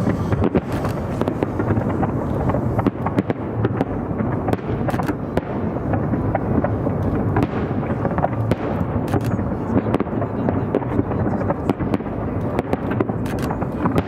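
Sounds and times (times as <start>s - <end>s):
fireworks bursting: 0.0s - 14.0s
fireworks cracks and bangs: 0.0s - 14.0s.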